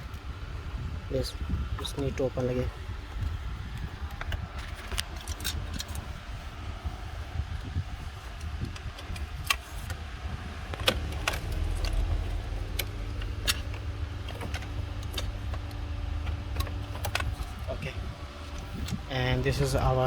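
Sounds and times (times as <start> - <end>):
steady low rumble: 0.0 - 20.0
plastic trim clicks and rattles: 10.7 - 17.6.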